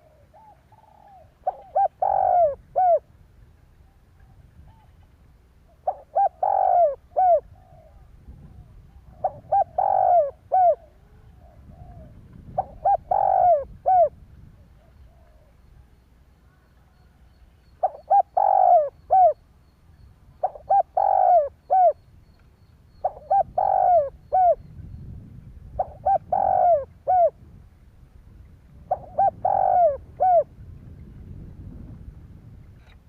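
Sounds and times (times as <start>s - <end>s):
dove cooing: 0.0s - 3.1s, 5.7s - 15.7s, 16.5s - 19.4s, 20.4s - 22.1s, 22.9s - 24.7s, 25.7s - 27.4s, 28.9s - 30.5s.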